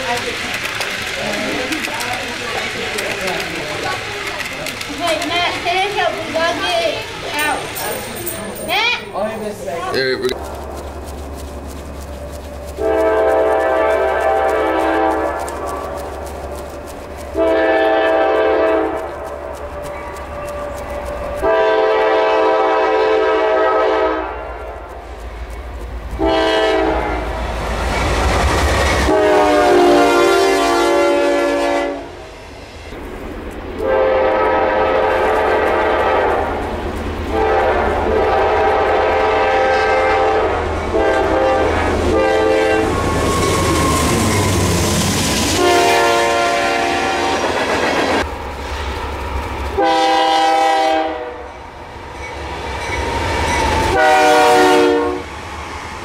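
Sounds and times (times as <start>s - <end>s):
wheels clattering over rails: 0.0s - 21.8s
train rumbling: 0.0s - 56.0s
train air horn blasts: 12.7s - 15.9s, 17.3s - 19.2s, 21.3s - 24.8s, 26.2s - 27.4s, 29.0s - 32.2s, 33.8s - 36.6s, 37.2s - 47.6s, 49.8s - 51.6s, 53.7s - 55.3s.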